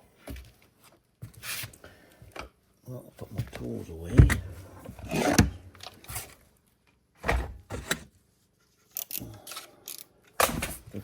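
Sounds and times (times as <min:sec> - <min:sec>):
hand tools clunking and rattling: 0:03.4 - 0:06.3.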